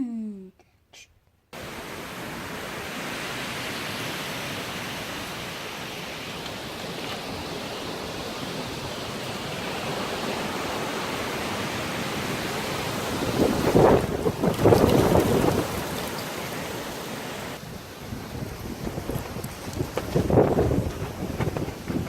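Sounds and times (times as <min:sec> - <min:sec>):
wind rushing: 0:13.0 - 0:16.1.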